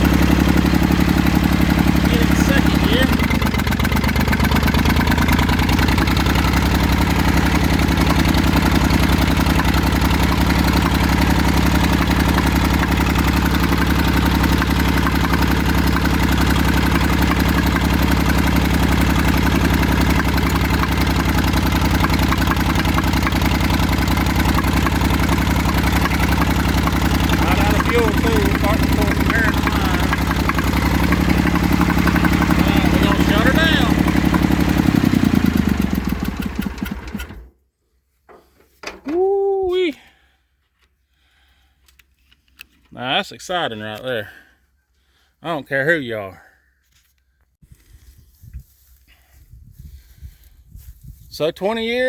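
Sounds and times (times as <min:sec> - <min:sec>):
tractor diesel engine running: 0:00.0 - 0:37.5.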